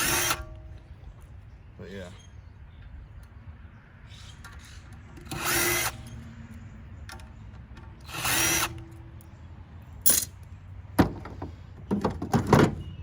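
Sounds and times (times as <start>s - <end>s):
cordless drill running: 0.0s - 0.4s, 5.2s - 6.2s, 8.0s - 8.8s.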